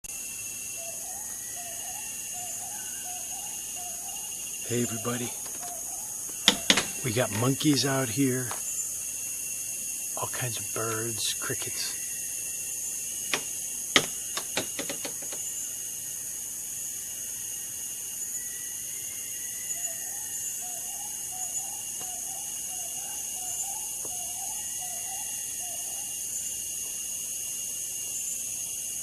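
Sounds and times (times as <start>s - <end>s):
insects shrilling: 0.0s - 29.0s
bird warbling call: 0.8s - 8.9s.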